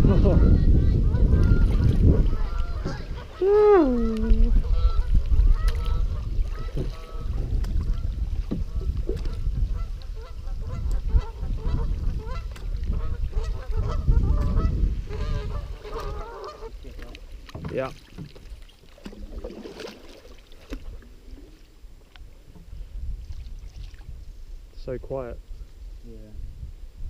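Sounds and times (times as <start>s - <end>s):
wind buffeting microphone: 0.0s - 18.3s, 22.2s - 27.0s.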